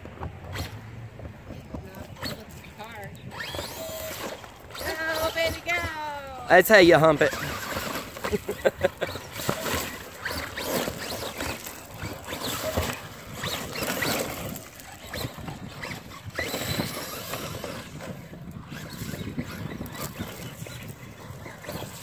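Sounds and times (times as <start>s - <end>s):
electric motors whining: 0.0s - 22.0s
tyres splashing in mud: 6.8s - 18.0s.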